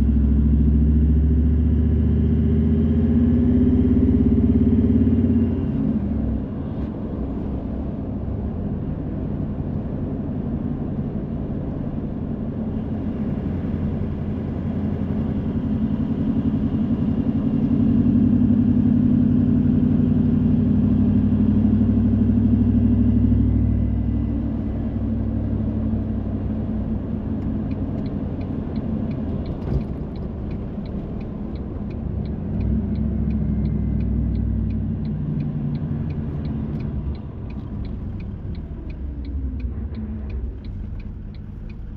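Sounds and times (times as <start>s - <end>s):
car engine and road noise: 0.0s - 41.9s
steady ticking: 27.7s - 41.9s.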